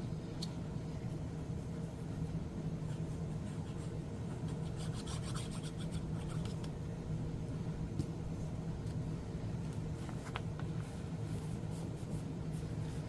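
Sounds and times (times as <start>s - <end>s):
low hum: 0.0s - 13.0s
paper rubbing and scratching: 2.8s - 6.6s.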